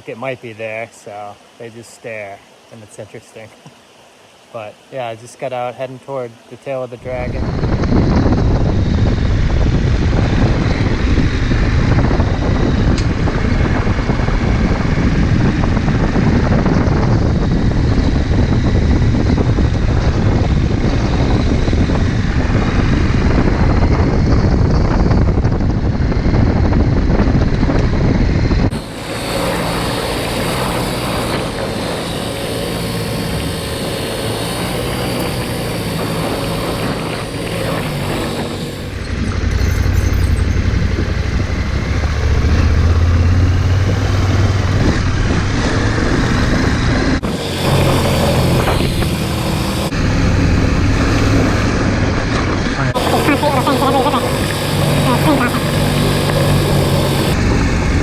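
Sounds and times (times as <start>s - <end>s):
wind rush on microphone: 6.9s - 58.0s
motorcycle engine running: 7.2s - 58.0s.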